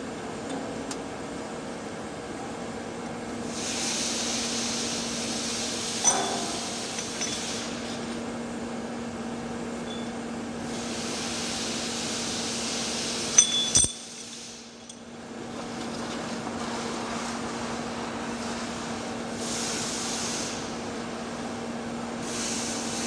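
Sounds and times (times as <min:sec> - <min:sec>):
metallic clinks: 0:05.9 - 0:08.4, 0:13.3 - 0:16.1
low machine hum: 0:13.2 - 0:18.2.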